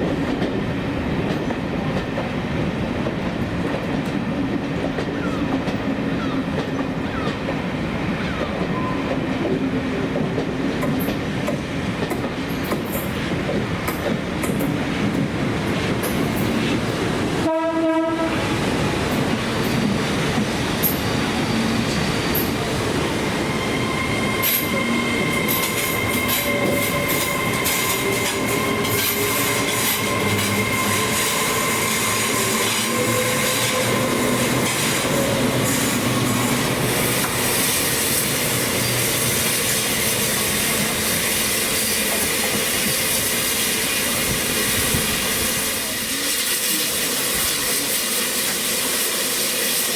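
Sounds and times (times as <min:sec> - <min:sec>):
train running on rails: 0:00.0 - 0:49.9
train horn blast: 0:17.4 - 0:19.0, 0:23.6 - 0:37.6
high wheel squeal: 0:22.2 - 0:40.8.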